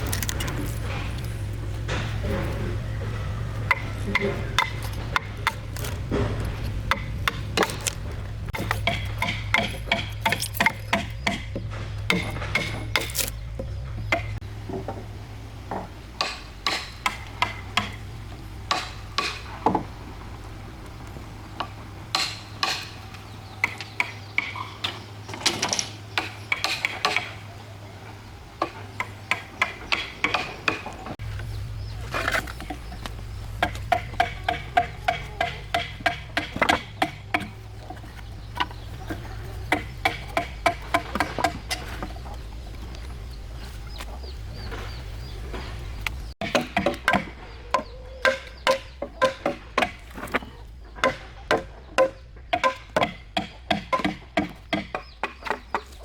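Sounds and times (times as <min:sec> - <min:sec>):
steady low hum: 0:00.0 - 0:56.0
tools knocking on wood: 0:01.7 - 0:20.0, 0:32.2 - 0:43.2, 0:44.7 - 0:56.0.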